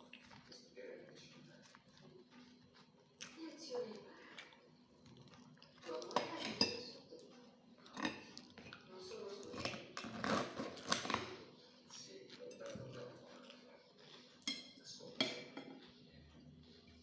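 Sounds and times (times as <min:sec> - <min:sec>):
cutlery clinking on a plate: 0:06.1 - 0:07.0, 0:12.3 - 0:16.0.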